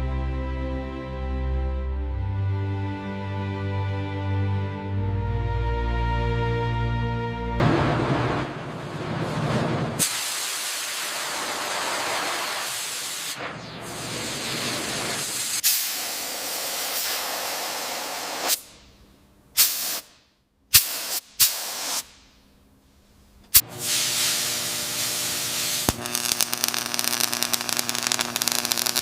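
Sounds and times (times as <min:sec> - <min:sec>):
spraying hiss: 0:10.0 - 0:18.7, 0:19.6 - 0:20.1, 0:20.8 - 0:22.1, 0:23.8 - 0:26.0.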